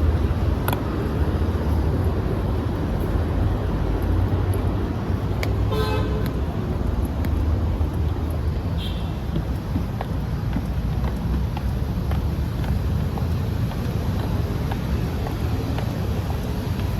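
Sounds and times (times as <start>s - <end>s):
low traffic rumble: 0.0s - 16.9s.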